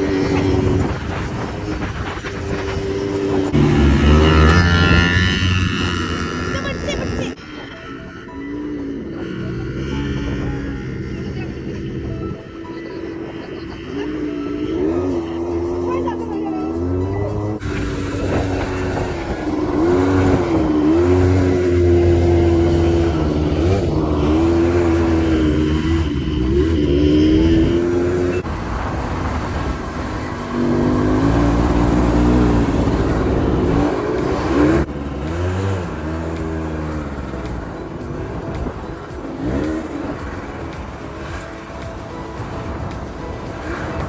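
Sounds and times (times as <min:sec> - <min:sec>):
buggy engine revving: 0:00.0 - 0:44.0.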